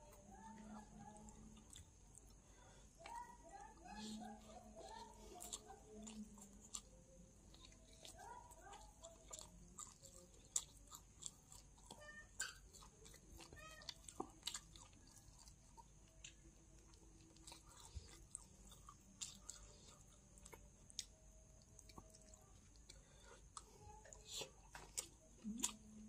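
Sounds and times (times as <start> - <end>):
person chewing and biting food: 7.5 - 25.9.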